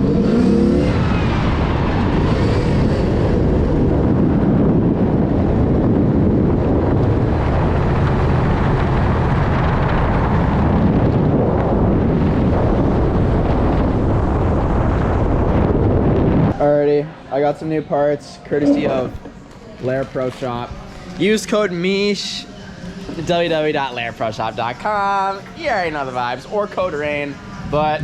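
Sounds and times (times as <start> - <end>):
wind noise: 0.0 - 16.9, 26.8 - 28.0.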